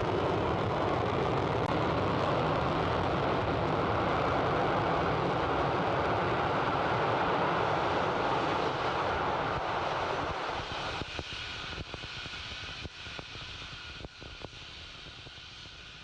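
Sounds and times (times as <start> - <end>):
rocket engine rushing: 0.0 - 11.9
crackles and pops: 0.0 - 15.9.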